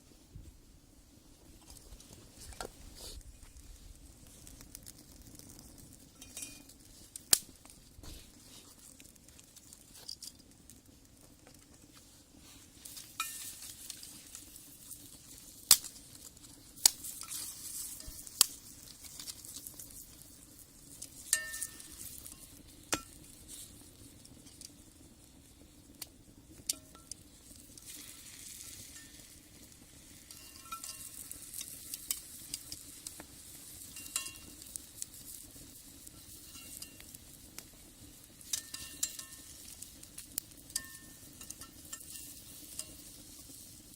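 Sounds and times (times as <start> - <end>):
wood fire popping: 0.0 - 43.9
food sizzling in a skillet: 2.3 - 10.9, 11.6 - 43.9.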